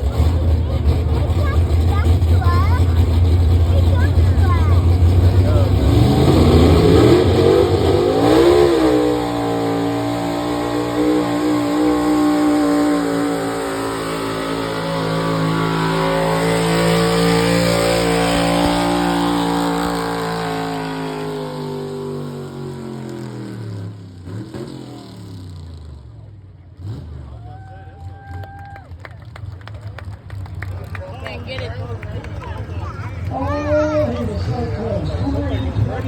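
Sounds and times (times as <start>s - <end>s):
pulling tractor engine at full throttle: 0.0s - 27.4s.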